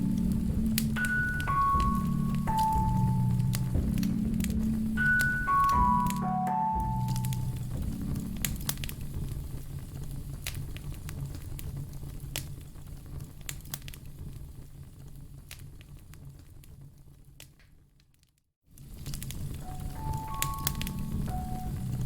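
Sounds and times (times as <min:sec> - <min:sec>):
low steady rumble: 0:00.0 - 0:13.4, 0:19.0 - 0:22.0
wood fire crackling and popping: 0:00.0 - 0:22.0.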